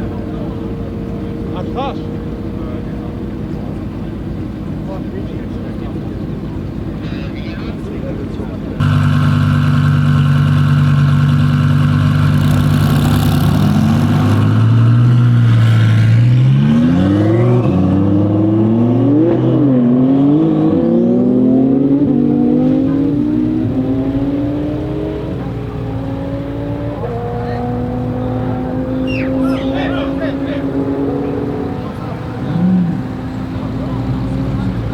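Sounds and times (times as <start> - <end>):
car engine accelerating hard: 7.8 - 34.9.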